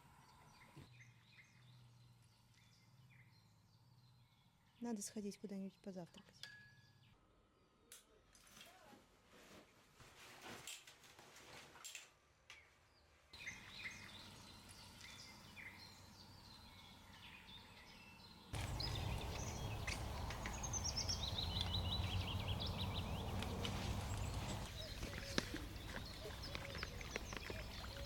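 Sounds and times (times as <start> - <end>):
small birds chirping and trilling: 13.4 - 28.0
steady low rumble: 18.6 - 24.9.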